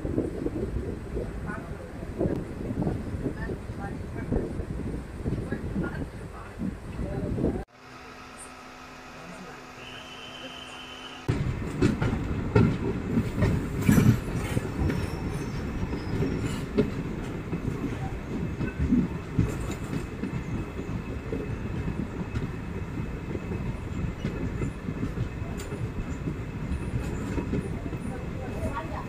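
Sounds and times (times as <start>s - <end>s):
train wheels rumbling on rails: 0.0s - 7.7s, 9.3s - 29.0s
wheels clickety-clack: 11.3s - 29.0s.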